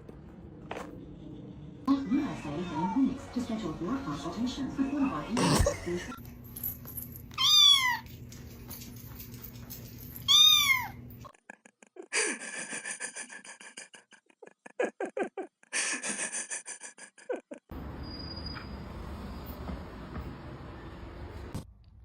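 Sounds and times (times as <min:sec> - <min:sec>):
cat meowing: 0:07.4 - 0:08.1, 0:10.3 - 0:11.0.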